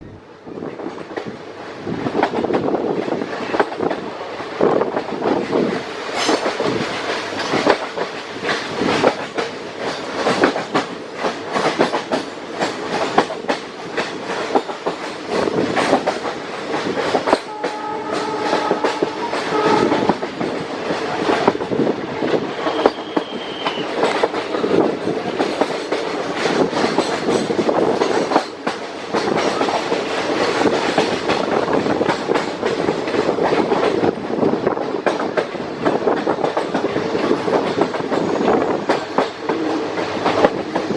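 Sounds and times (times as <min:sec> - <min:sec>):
train wheels clicking on rail joints: 0:00.6 - 0:40.9
train horn: 0:17.4 - 0:20.3.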